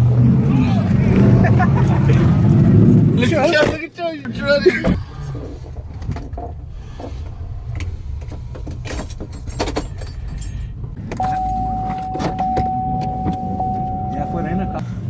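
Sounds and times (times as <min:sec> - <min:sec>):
vehicle engine idling: 0:11.0 - 0:15.0
steady high tone: 0:11.2 - 0:14.8.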